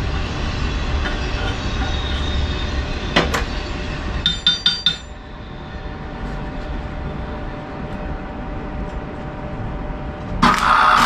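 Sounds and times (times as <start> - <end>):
metal knocking on metal: 4.3 - 5.1
ringing metallic clinks: 4.3 - 5.1.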